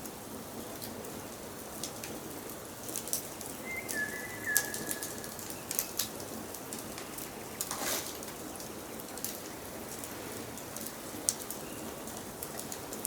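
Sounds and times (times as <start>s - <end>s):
bird whistling: 3.6s - 6.0s.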